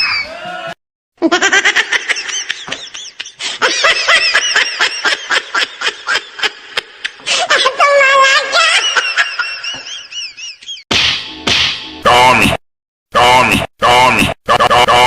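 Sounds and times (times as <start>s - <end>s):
rapid high-pitched laughing: 13.4s - 15.0s.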